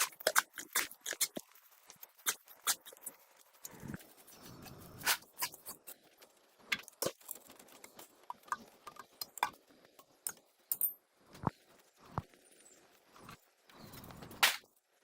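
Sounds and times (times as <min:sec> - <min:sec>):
hand tools and metal parts clicking: 0:06.7 - 0:11.5.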